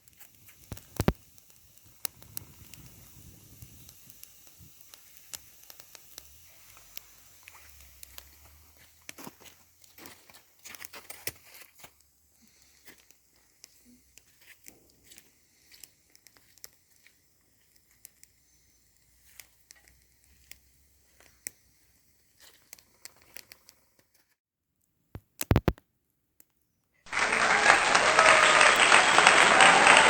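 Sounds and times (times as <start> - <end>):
faint crackling and rustling: 0.0 - 24.4
sharp clicks: 25.2 - 25.8
loud applause: 27.1 - 30.0.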